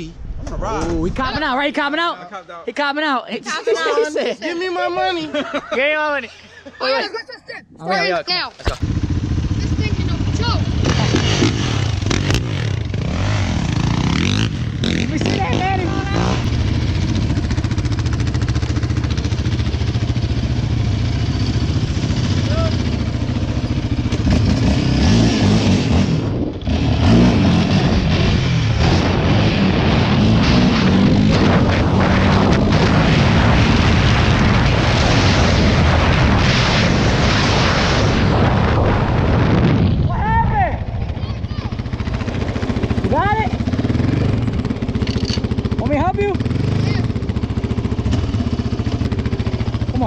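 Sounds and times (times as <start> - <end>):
dirt bike engine idling: 8.6 - 25.2, 40.6 - 50.0.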